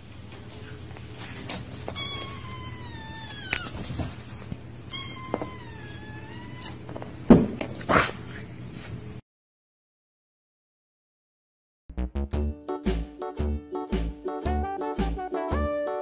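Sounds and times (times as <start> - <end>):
kitten meowing: 1.9 - 3.9, 4.9 - 6.8.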